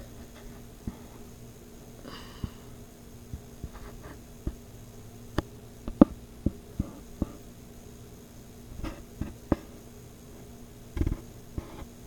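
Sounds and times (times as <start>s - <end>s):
person sniffing: 2.0s - 2.8s.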